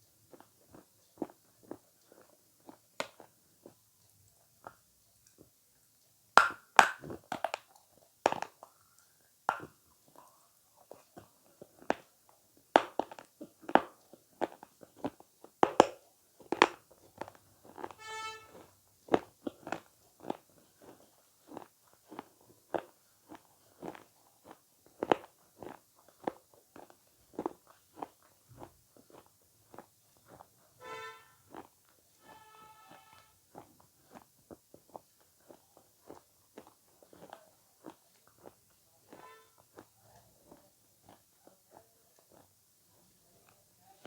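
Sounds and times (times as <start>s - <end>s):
person chewing food close up: 0.0s - 44.0s
brief pitched tone: 18.0s - 18.5s, 30.8s - 31.4s, 32.3s - 33.3s
clicky mouth sounds: 31.5s - 42.6s.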